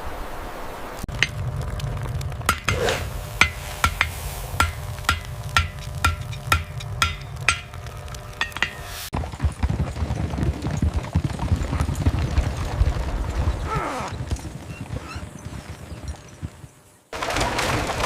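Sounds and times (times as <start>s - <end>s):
sharp ringing knocks: 3.4s - 9.1s.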